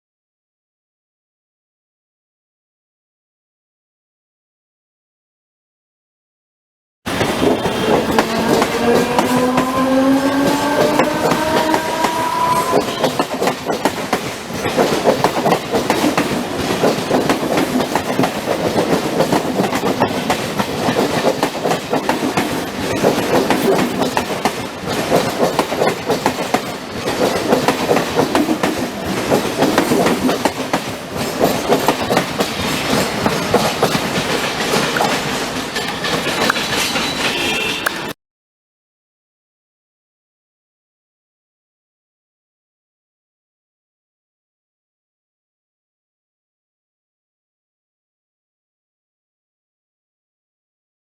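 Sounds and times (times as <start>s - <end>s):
train wheels clickety-clack: 7.1s - 38.2s
rising tone: 7.9s - 13.0s.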